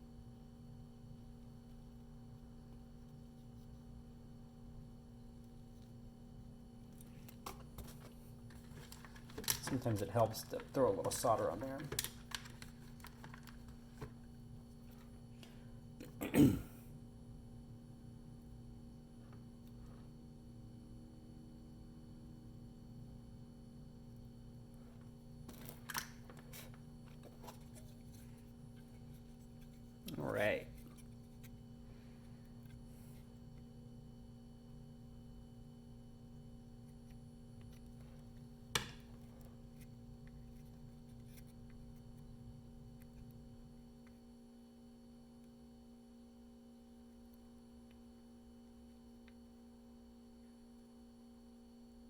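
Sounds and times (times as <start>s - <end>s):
low electrical hum: 0.0s - 52.0s.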